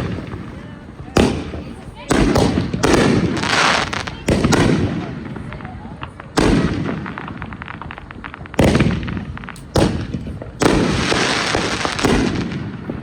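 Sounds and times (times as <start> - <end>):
firework booms: 0.0 - 13.0
rapid firework crackling: 0.0 - 13.0.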